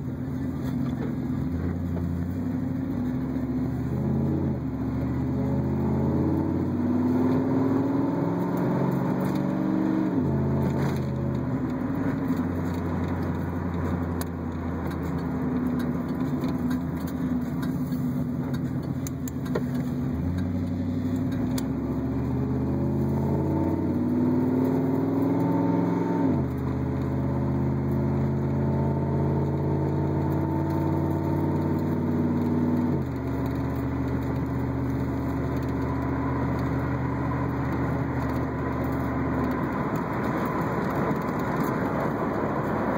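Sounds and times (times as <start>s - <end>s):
car engine revving through gears: 0.0s - 42.9s.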